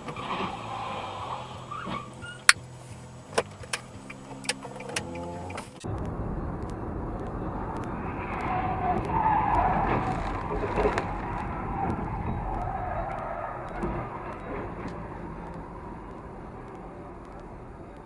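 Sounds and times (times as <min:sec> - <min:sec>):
tyres squealing and skidding: 0:00.0 - 0:02.6, 0:08.0 - 0:16.0
car driving: 0:00.0 - 0:18.0.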